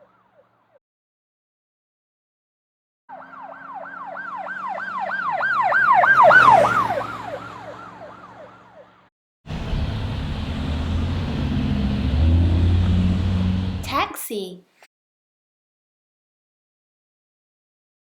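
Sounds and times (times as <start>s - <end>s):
police siren wailing: 3.1s - 13.8s
road noise: 3.1s - 14.3s
vehicle engine rumbling: 9.5s - 13.9s.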